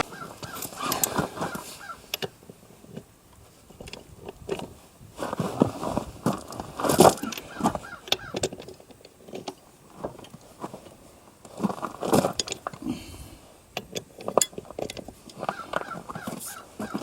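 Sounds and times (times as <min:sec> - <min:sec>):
metal hand tools clinking: 0:00.4 - 0:02.4, 0:13.8 - 0:16.3.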